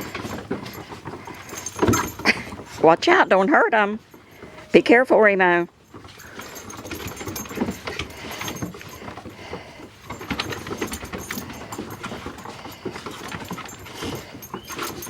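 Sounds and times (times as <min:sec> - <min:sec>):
dogs scuffling and clicking: 0:00.0 - 0:04.7, 0:05.7 - 0:15.0
faint puppy squeaks: 0:13.9 - 0:15.0.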